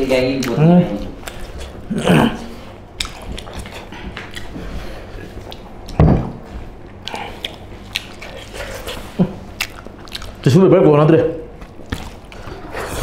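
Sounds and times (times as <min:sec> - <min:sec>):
chewing and lip smacking: 0:00.2 - 0:01.9, 0:02.6 - 0:06.0, 0:06.8 - 0:10.6, 0:11.5 - 0:13.0.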